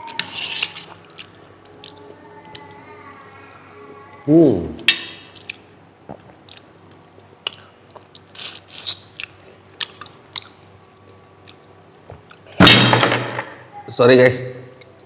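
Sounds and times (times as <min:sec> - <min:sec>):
man chewing with mouth smacks: 0:00.8 - 0:02.1, 0:05.3 - 0:12.5.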